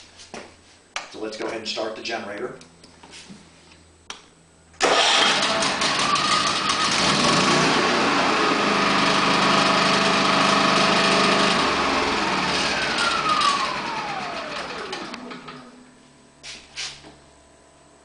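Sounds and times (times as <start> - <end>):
generator engine running: 4.8 - 15.9
generator winding down: 4.8 - 15.9.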